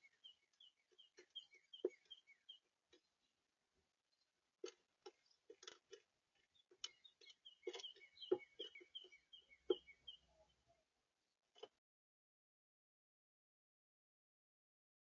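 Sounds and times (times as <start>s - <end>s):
birds pecking seed: 0.0s - 3.5s, 4.2s - 10.3s.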